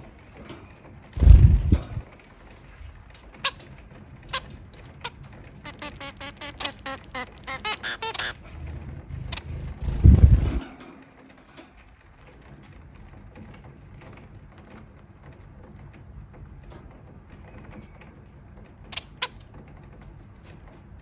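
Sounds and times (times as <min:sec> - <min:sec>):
small clicks and creaks: 0:00.0 - 0:21.0
sharp clicks: 0:01.2 - 0:02.0.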